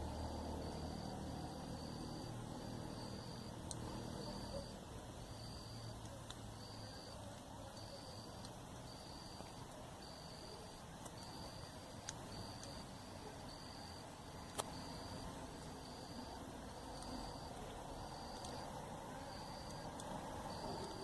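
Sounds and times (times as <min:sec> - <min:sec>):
insect chirping: 0:00.0 - 0:21.0
campfire crackling: 0:00.1 - 0:21.0
fire popping: 0:06.0 - 0:06.6, 0:08.2 - 0:15.8.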